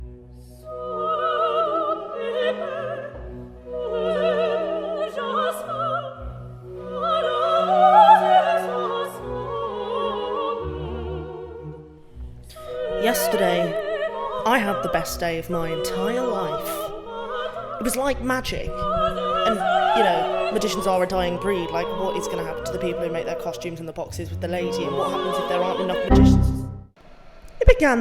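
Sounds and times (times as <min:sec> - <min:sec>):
operatic singing: 0:00.0 - 0:26.9
orchestral accompaniment: 0:19.5 - 0:27.0.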